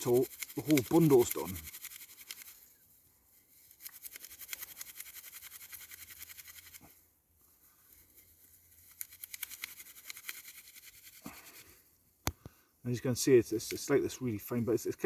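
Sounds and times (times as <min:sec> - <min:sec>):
bark rubbed between hands: 0:00.0 - 0:07.1, 0:07.9 - 0:11.6.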